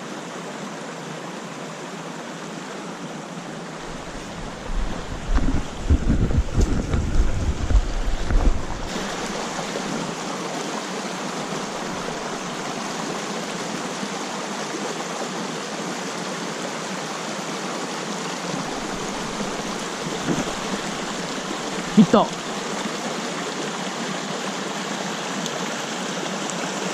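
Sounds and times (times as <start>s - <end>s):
stream water rushing: 0.0s - 26.9s
wind rumble on microphone: 3.8s - 10.1s, 18.5s - 22.0s.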